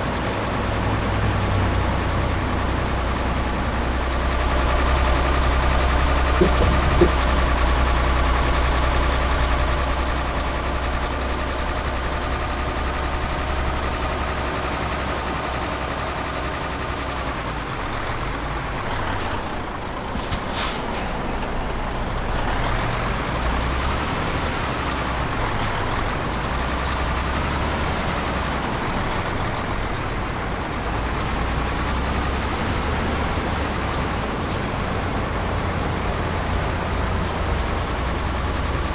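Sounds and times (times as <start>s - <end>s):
truck engine running: 0.0s - 38.9s
short double hiss: 20.2s - 21.1s.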